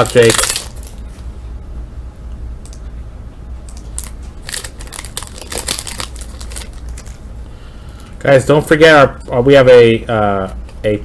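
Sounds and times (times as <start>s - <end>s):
foil wrapper crinkling and tearing: 0.0s - 1.0s, 3.8s - 7.2s.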